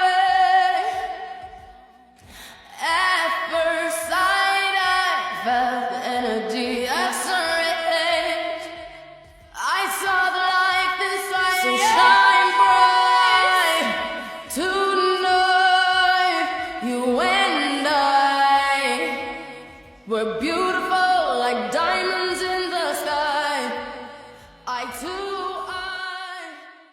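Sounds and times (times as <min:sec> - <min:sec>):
woman singing: 0:00.0 - 0:26.9.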